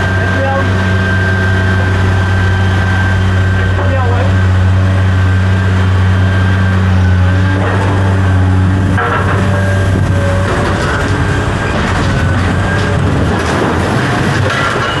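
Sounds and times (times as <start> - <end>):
large engine droning: 0.0 - 15.0
rough rattling noise: 7.5 - 15.0.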